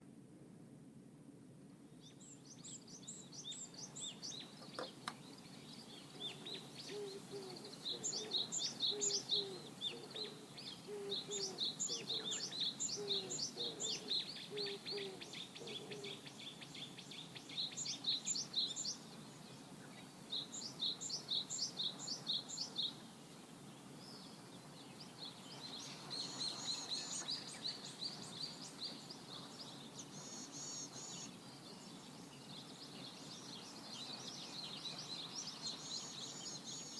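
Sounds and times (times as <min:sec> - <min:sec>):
songbirds chirping: 0:01.6 - 0:36.9
lower bird call: 0:02.0 - 0:23.1, 0:24.0 - 0:36.9.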